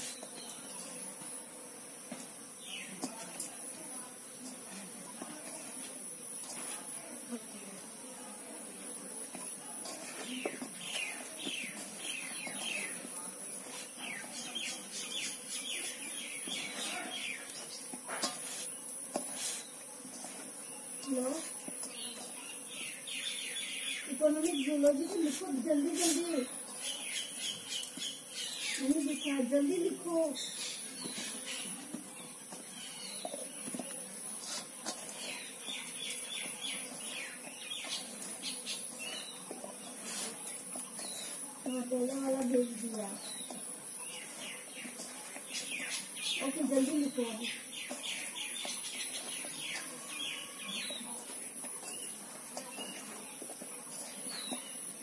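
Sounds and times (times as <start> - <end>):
birds chirping: 10.2 - 13.2, 20.6 - 34.1, 35.1 - 55.0.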